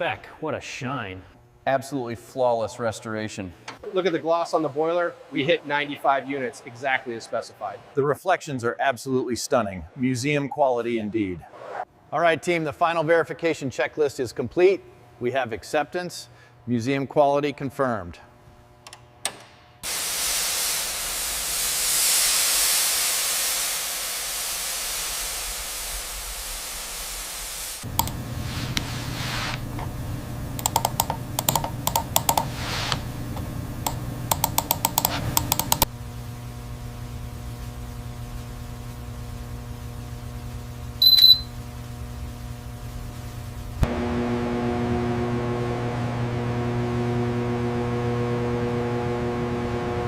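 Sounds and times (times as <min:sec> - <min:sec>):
loud steady hiss: 0:19.8 - 0:29.6
low hum: 0:27.8 - 0:50.0
sharp clicks: 0:28.0 - 0:28.2, 0:30.6 - 0:32.5, 0:33.4 - 0:35.9
short high beep: 0:41.0 - 0:41.5.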